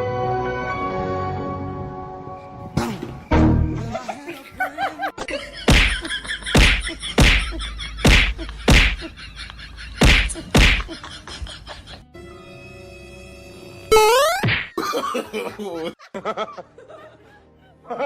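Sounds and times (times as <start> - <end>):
loud whacks with thud: 5.7 - 6.0, 6.6 - 9.0, 10.0 - 10.9
rising and falling pitched sounds: 13.9 - 14.7.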